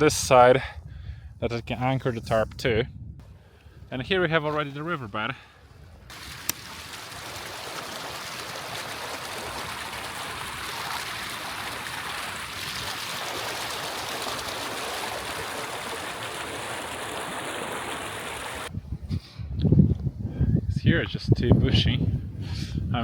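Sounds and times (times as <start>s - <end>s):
mountain stream flowing: 6.1s - 18.7s.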